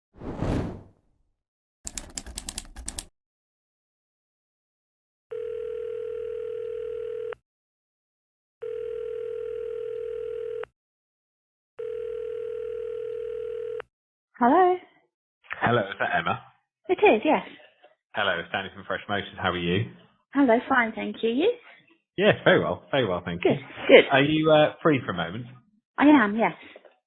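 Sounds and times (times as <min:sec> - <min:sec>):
phone ringback tone: 0:05.3 - 0:07.4, 0:08.6 - 0:10.7, 0:11.8 - 0:13.8.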